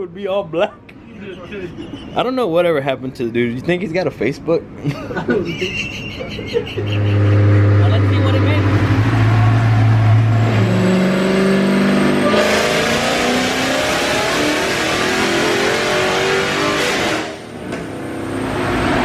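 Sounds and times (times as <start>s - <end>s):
car engine revving on dyno: 6.8s - 19.0s.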